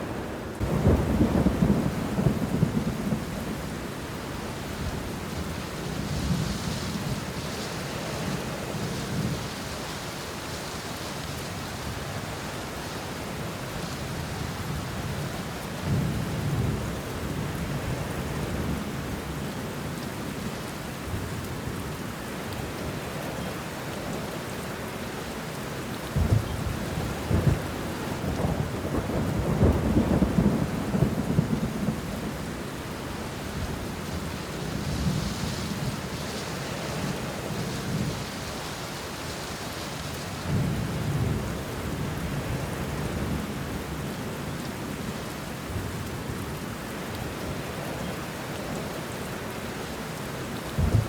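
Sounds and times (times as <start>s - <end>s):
rain falling on leaves: 0.0s - 51.0s
thunder rumbling: 0.6s - 3.8s, 26.2s - 32.4s, 50.7s - 51.0s.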